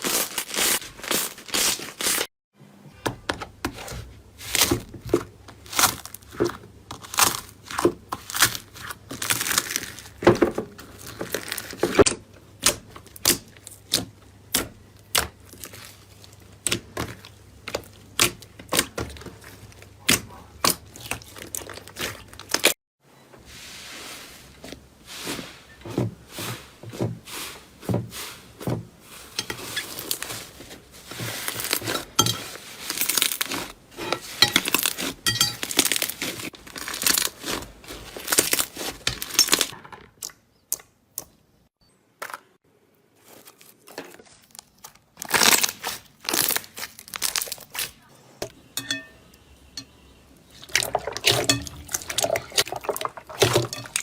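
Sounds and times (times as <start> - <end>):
slime popping and crackling: 5.6 - 10.2, 32.8 - 33.8, 34.5 - 39.8, 44.5 - 47.9.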